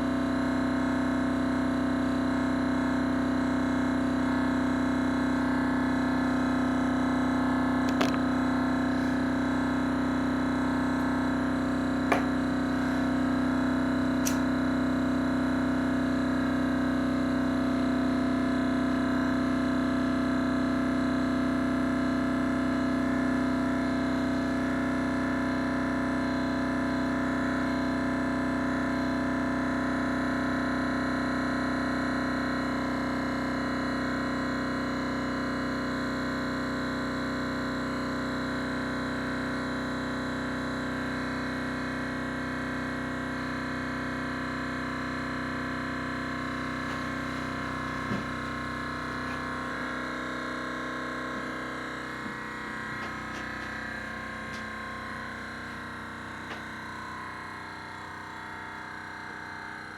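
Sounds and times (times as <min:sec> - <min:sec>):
thermoacoustic engine steady tone: 0:00.0 - 0:59.9
sharp click: 0:14.2 - 0:14.5.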